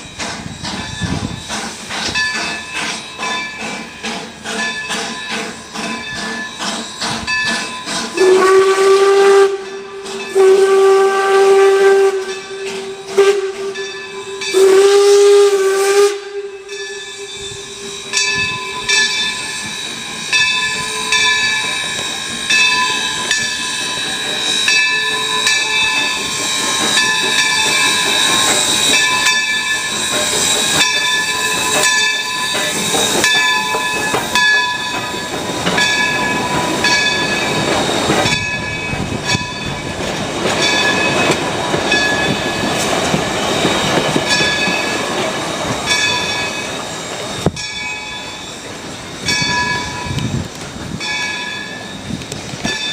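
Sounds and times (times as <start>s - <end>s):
rhythmic steam beat: 0.0s - 52.9s
steam hissing: 0.0s - 52.9s
steam locomotive whistle: 4.0s - 39.9s.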